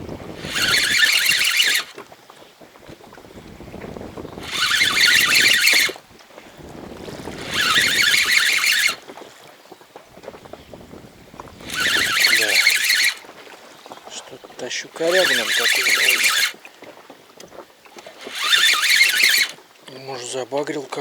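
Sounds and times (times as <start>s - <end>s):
spinning reel buzzing: 0.0s - 2.1s, 3.4s - 6.1s, 6.9s - 9.2s, 11.4s - 16.6s, 18.0s - 19.6s.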